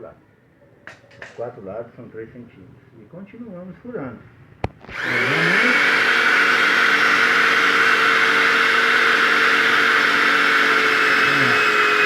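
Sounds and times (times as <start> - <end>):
electric drill boring into iron: 4.6 - 12.0.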